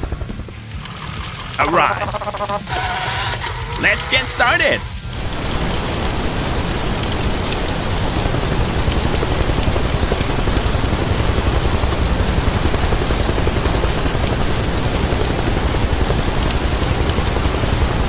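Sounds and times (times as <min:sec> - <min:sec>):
vehicle engine running: 0:00.0 - 0:18.0
fine crackle: 0:04.9 - 0:18.0.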